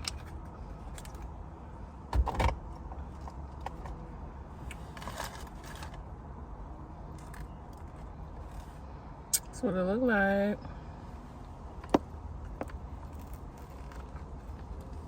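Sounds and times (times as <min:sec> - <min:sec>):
faint rustles and clicks: 0:11.4 - 0:15.0.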